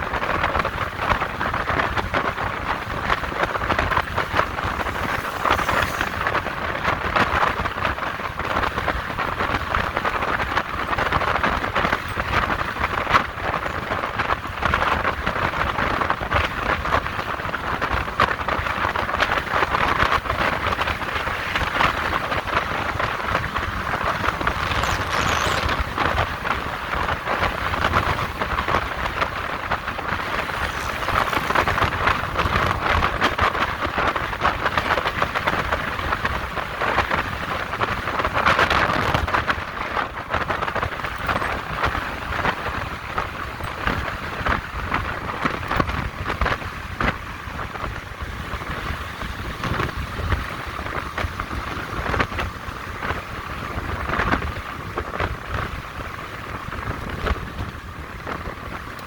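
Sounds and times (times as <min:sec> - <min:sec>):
motorcycle road noise: 0:00.0 - 0:59.0
rushing wind: 0:00.0 - 0:59.0
low rumble: 0:02.7 - 0:07.6.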